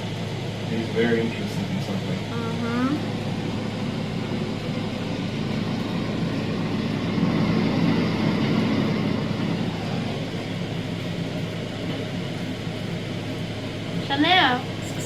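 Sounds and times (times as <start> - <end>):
faint hum: 0.0 - 15.0
low rumble: 0.0 - 15.0.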